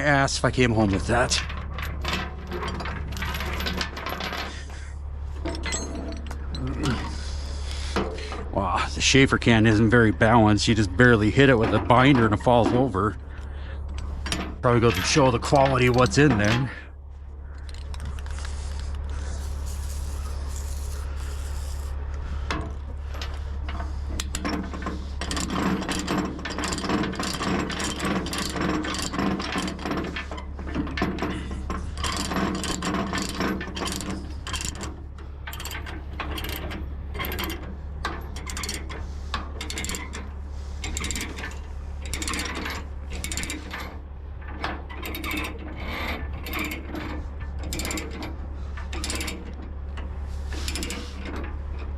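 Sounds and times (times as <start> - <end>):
low hum: 0.0 - 51.9
ratchet pawl clicking: 17.6 - 22.0.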